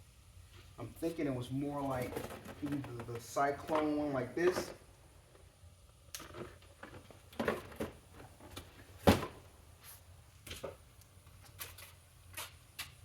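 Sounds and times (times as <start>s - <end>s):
light handling noise: 1.8s - 4.8s.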